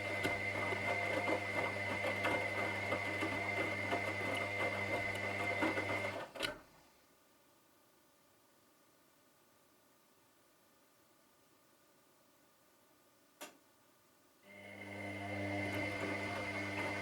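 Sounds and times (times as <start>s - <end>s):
washing machine running: 0.0s - 6.3s, 14.5s - 17.0s.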